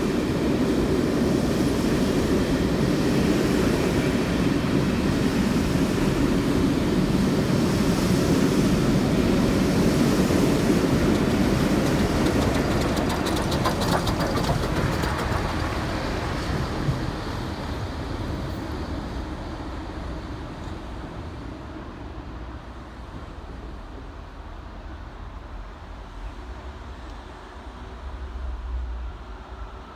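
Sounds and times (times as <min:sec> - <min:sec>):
steam train rumbling past: 0:00.0 - 0:29.9
wheel clicks over rail joints: 0:10.4 - 0:17.0.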